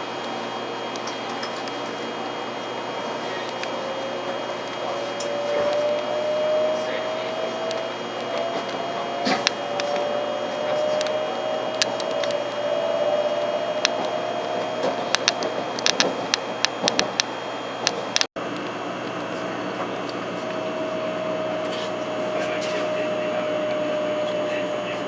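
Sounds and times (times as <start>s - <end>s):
motor whine: 0.0s - 25.0s
train interior rush: 20.4s - 25.0s.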